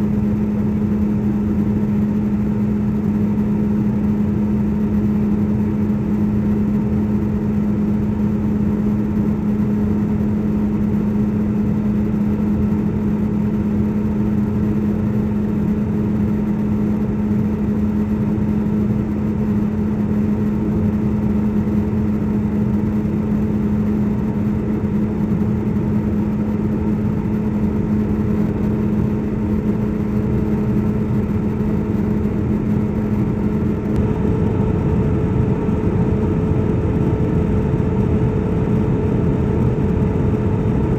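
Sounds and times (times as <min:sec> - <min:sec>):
airliner engine drone: 0:00.0 - 0:40.9
constant low hum: 0:00.0 - 0:40.9
higher engine tone: 0:28.4 - 0:40.9.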